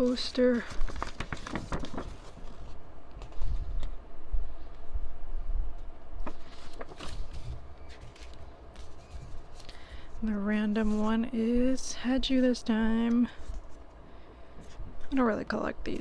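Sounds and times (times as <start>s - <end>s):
paper rustling: 0.0s - 3.9s, 6.2s - 11.3s.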